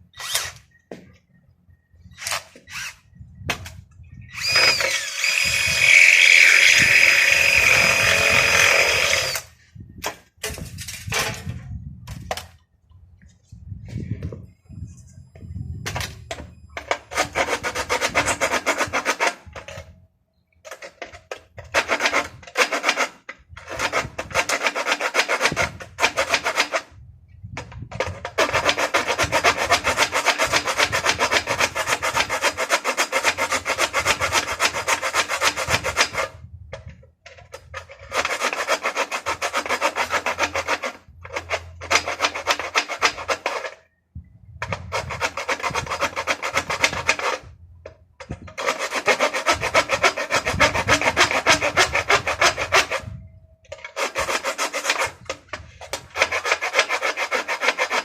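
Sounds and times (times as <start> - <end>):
hand tool rasping: 4.3 - 9.5, 16.8 - 19.8, 20.7 - 26.9, 27.9 - 43.8, 44.6 - 47.5, 48.2 - 58.0.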